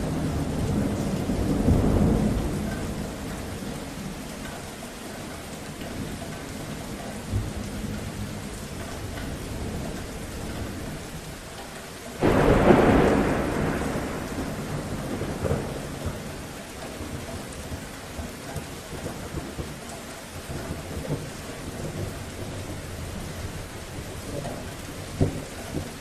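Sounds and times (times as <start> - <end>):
thunder clap rumbling: 0.0 - 4.2, 12.2 - 18.3
steady rain: 0.0 - 26.0.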